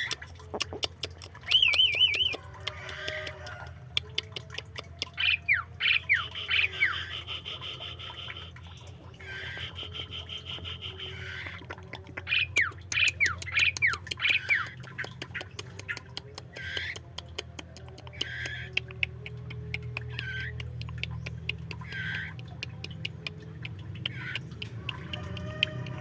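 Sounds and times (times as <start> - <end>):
songbirds falling whistles: 1.5 - 2.4.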